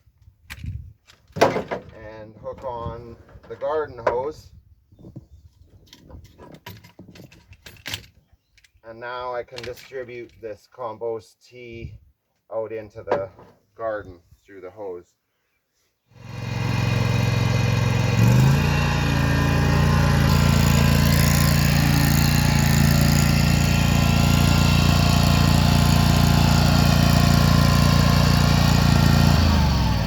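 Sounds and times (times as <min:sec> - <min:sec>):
riding mower engine running: 0:16.2 - 0:30.0.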